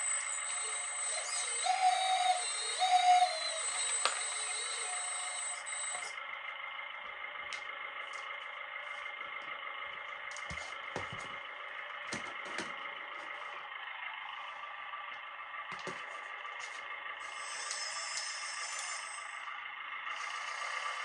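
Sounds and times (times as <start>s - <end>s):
electric whine of small motors: 0.0s - 6.6s, 12.1s - 21.0s.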